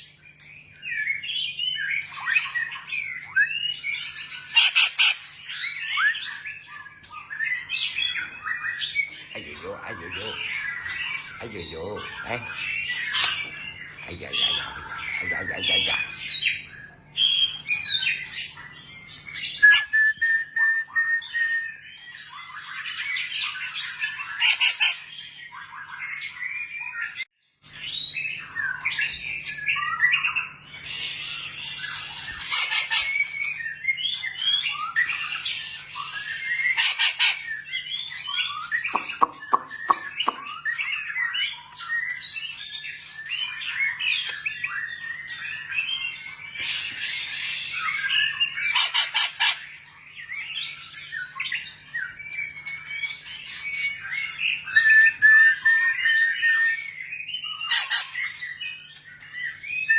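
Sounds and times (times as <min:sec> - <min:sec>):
songbird singing whistled phrases: 0:00.1 - 0:49.6, 0:50.2 - 0:59.9.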